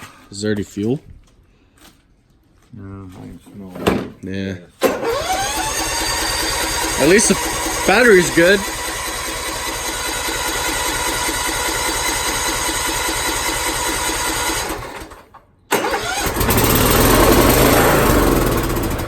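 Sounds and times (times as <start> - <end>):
electric starter cranking engine: 4.8 - 19.0
mower engine running: 4.8 - 19.0.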